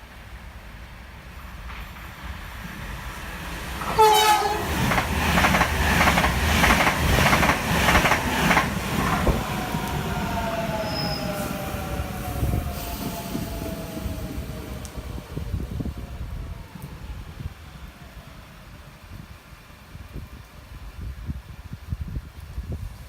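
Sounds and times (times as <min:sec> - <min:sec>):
train whine: 0:00.0 - 0:19.6
train horn toot: 0:03.8 - 0:04.9
train wheels clattering: 0:03.8 - 0:09.4.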